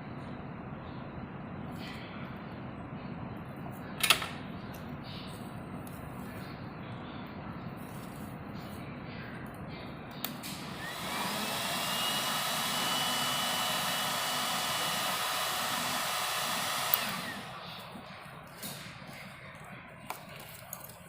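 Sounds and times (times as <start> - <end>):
heat gun fan whining: 10.1 - 20.9
heat gun switch click: 16.8 - 17.4.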